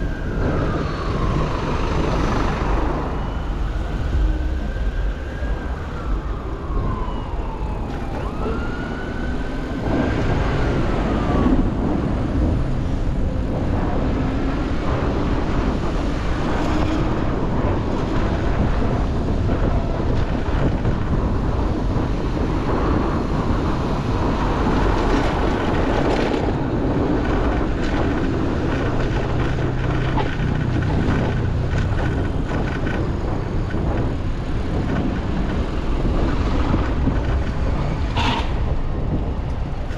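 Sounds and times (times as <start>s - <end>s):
siren wailing: 0.0s - 21.5s
street traffic rumble: 0.0s - 39.9s.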